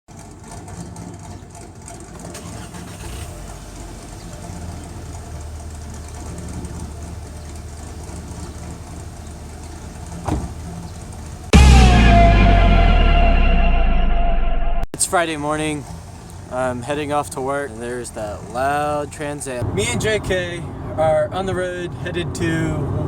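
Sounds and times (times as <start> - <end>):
car engine idling: 0.1 - 22.8
short thump: 10.2 - 10.6.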